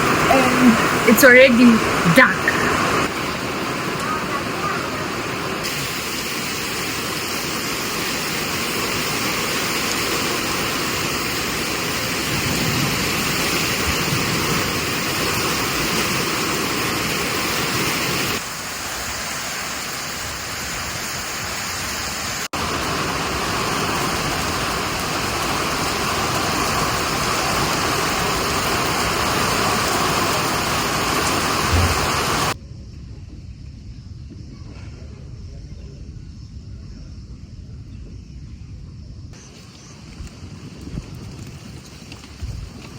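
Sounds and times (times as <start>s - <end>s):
heavy rain: 0.0s - 32.6s.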